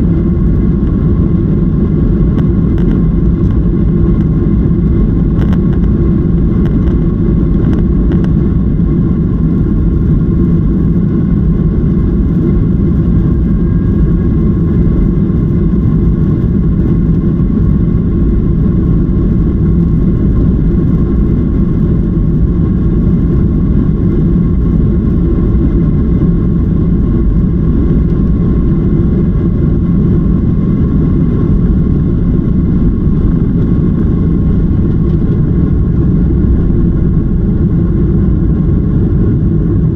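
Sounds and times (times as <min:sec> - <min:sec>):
faint whining tones: 0:00.0 - 0:39.9
jet engine drone in cabin: 0:00.0 - 0:39.9.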